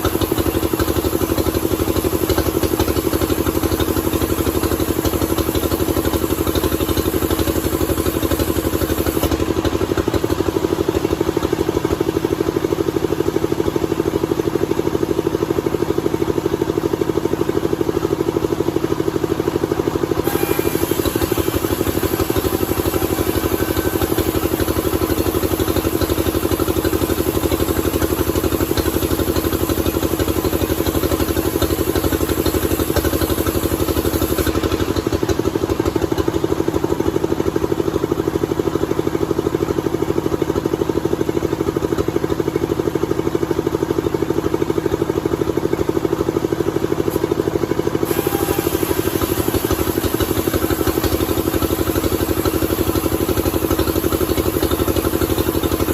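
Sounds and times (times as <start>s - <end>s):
motor humming: 20.2s - 26.3s, 48.0s - 52.0s.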